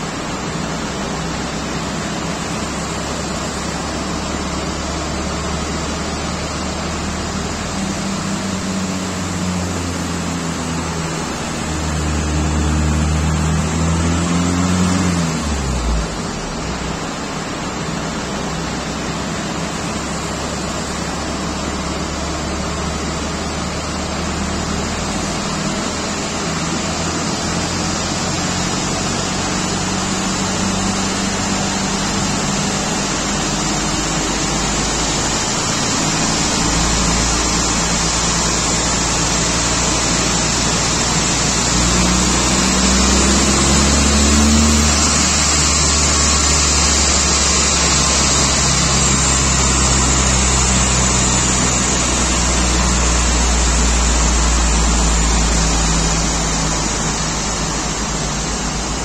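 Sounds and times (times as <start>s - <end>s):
diesel engine on dyno: 0.0s - 59.0s
loud steady rushing noise: 0.0s - 59.0s.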